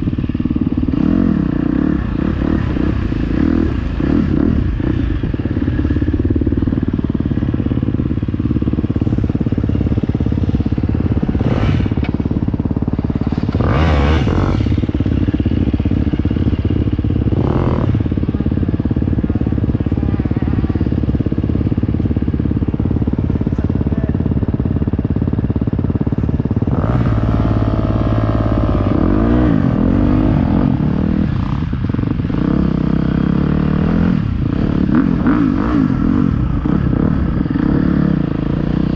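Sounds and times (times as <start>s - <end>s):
dirt bike engine revving: 0.0s - 23.4s, 26.1s - 38.9s.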